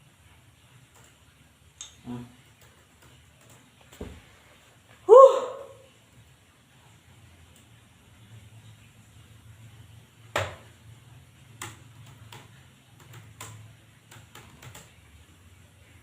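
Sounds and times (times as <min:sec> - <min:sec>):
keyboard keys clicking: 0:11.6 - 0:15.0.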